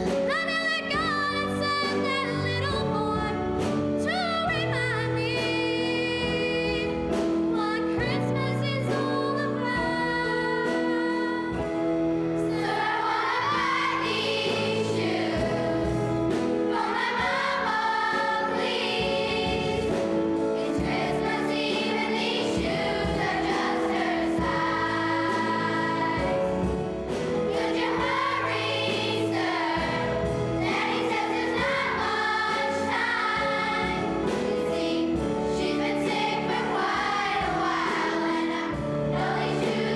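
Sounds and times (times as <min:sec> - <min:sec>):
sustained instrumental accompaniment: 0:00.0 - 0:39.9
choir singing: 0:12.4 - 0:39.9.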